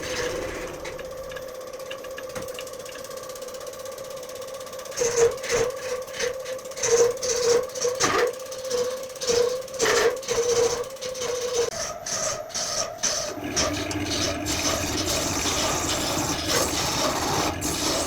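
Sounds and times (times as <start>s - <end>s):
tool scraping spinning wood: 4.9s - 18.0s
woodturning lathe humming: 13.2s - 18.0s.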